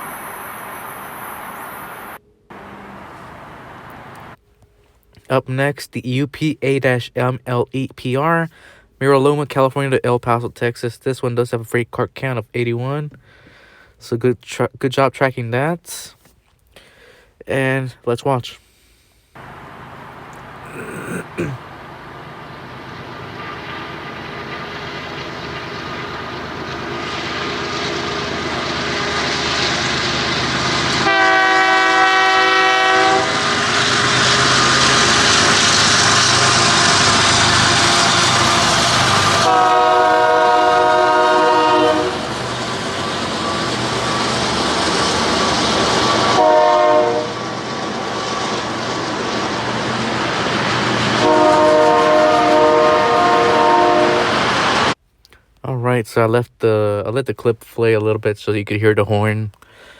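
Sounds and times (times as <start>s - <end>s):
freight train rumbling past: 0.0s - 4.4s, 19.4s - 55.0s
train air horn blasts: 30.8s - 42.4s, 46.1s - 47.5s, 51.2s - 54.5s.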